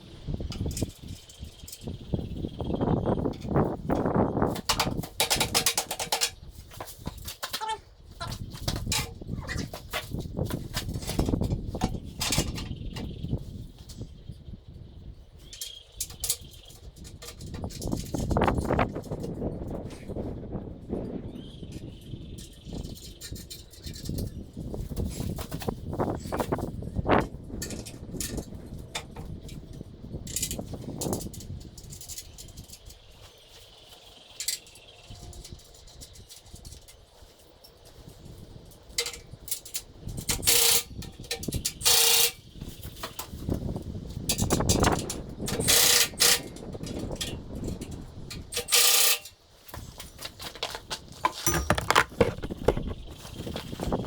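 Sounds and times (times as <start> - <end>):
knocks and clicks of work: 51.2 - 53.0
metal tools clinking: 51.2 - 53.0.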